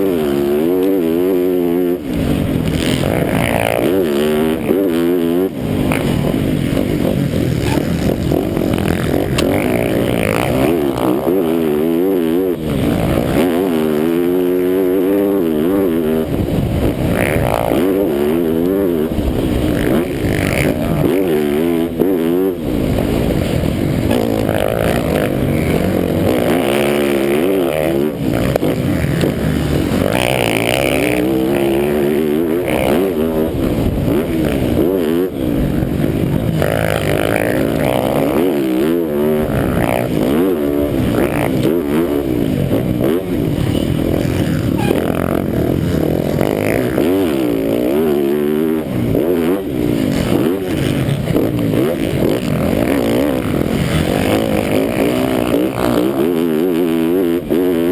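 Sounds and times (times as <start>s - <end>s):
motocross bike engine revving: 0.0s - 57.9s.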